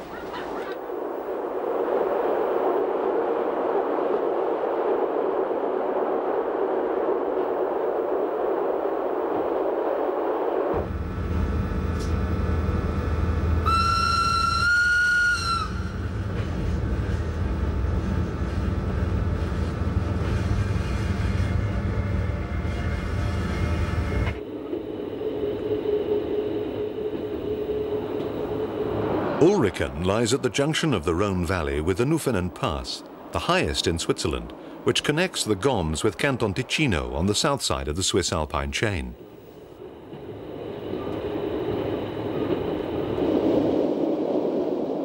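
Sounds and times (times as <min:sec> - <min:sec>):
electric locomotive horn: 0:10.8 - 0:16.2
train wheels rumbling on track: 0:10.8 - 0:31.8, 0:39.8 - 0:43.7.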